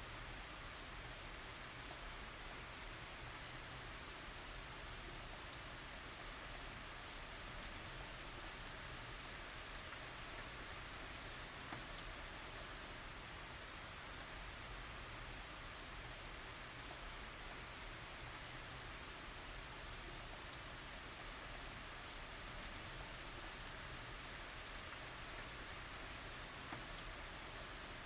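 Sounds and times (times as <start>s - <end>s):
light rain falling: 0.0s - 28.0s
raindrops ticking on surfaces: 0.0s - 28.0s.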